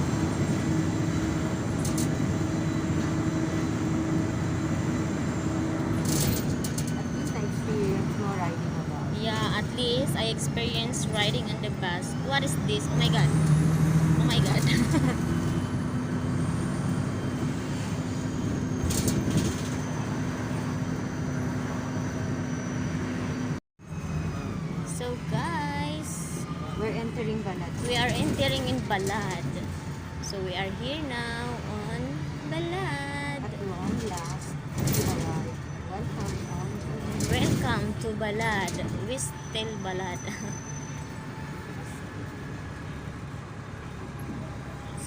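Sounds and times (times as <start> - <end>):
bus engine drone: 0.0 - 45.0
road rumble: 0.0 - 45.0
constant hum: 24.9 - 45.0.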